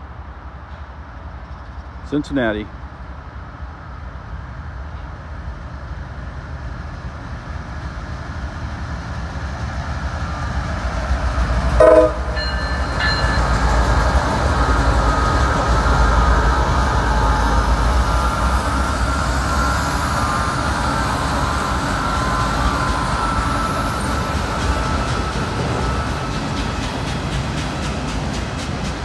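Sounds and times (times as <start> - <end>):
diesel locomotive engine rumble: 0.0 - 29.0
train horn toot: 11.8 - 12.8.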